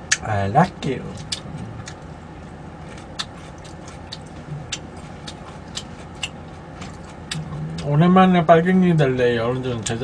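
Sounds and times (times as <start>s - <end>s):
chewing clicks and smacks: 0.1s - 0.3s, 1.1s - 8.0s.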